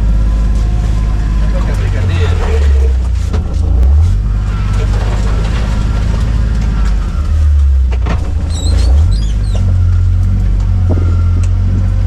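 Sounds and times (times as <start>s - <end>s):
vehicle engine rumbling: 0.0s - 12.0s
high squeaks: 8.4s - 10.2s.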